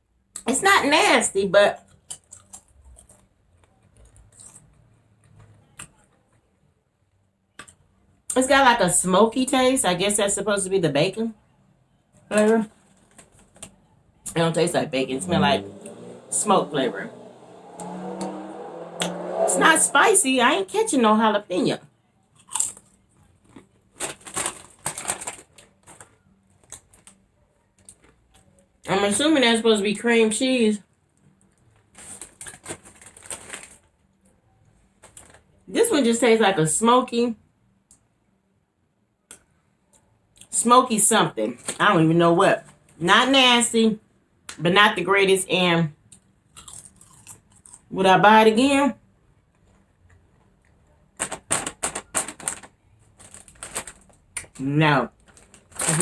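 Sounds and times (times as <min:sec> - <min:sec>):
chewing crunchy chips: 0:01.8 - 0:04.8, 0:22.4 - 0:27.2, 0:46.5 - 0:47.9.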